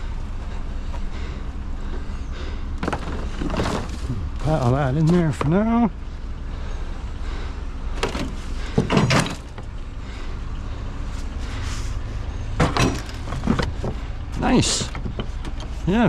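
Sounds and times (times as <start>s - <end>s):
low engine rumble: 0.0s - 16.0s
scrap metal knocks and clanks: 8.0s - 9.7s, 12.6s - 15.8s.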